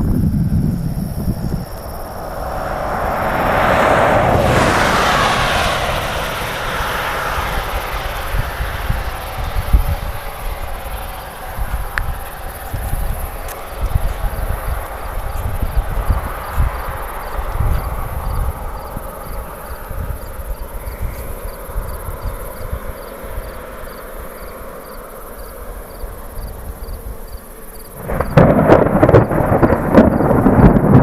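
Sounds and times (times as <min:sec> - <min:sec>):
thunder rumbling: 0:00.0 - 0:20.8, 0:28.0 - 0:31.0
thunder clap: 0:01.2 - 0:10.2, 0:28.0 - 0:31.0.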